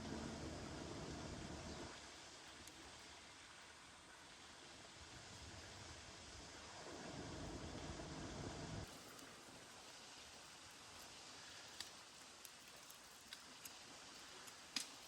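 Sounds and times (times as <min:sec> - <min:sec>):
low rumbling noise: 0:00.0 - 0:01.9, 0:06.2 - 0:08.9
faint rain hiss: 0:00.0 - 0:15.0.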